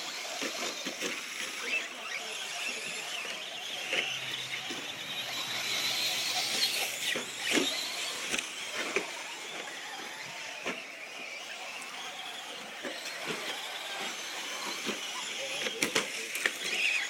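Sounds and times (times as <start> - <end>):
high-pitched rc motor whine: 0.0 - 17.0.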